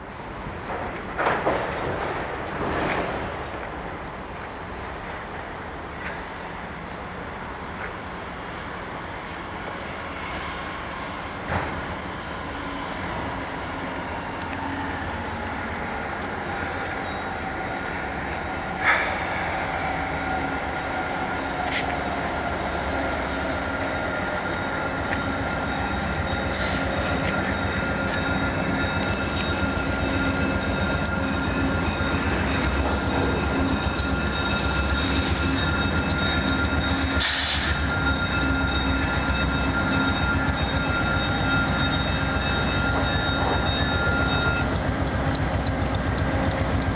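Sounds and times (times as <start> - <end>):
diesel train arriving: 0.0 - 46.9
high squeal: 23.3 - 45.0.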